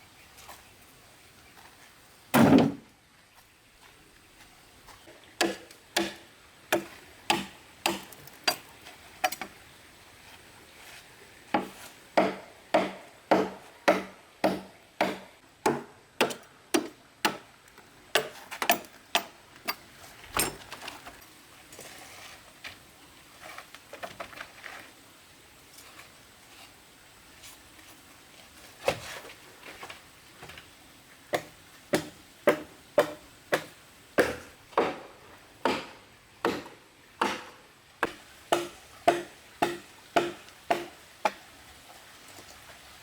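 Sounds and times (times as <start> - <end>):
tool striking bamboo: 5.4 - 9.5, 11.6 - 17.4, 31.4 - 41.4.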